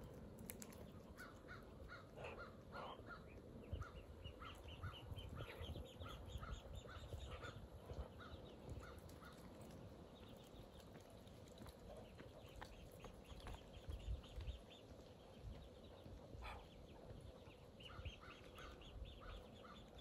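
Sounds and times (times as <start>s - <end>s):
duck bills pecking ground: 0.0s - 20.0s
harsh low bird calls: 1.0s - 9.4s.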